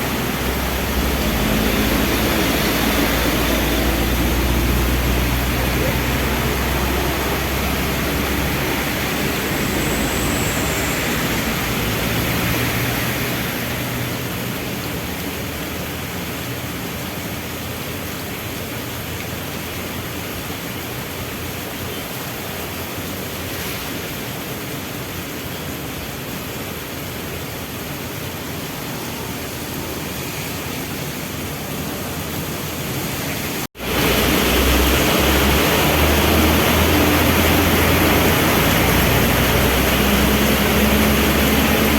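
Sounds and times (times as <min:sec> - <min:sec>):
vehicle engines humming: 0:00.0 - 0:23.2, 0:33.7 - 0:41.9
heavy rain falling: 0:00.0 - 0:41.9.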